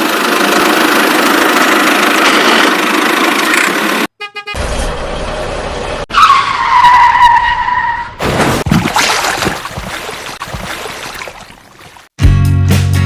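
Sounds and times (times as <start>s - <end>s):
vehicle noise: 0.0s - 8.6s.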